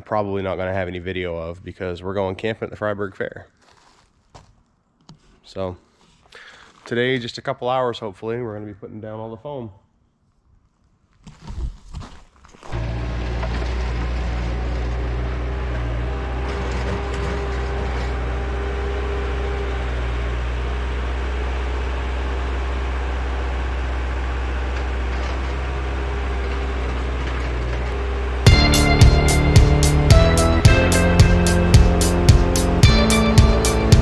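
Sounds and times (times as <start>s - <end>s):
engine running steadily: 12.7s - 34.0s.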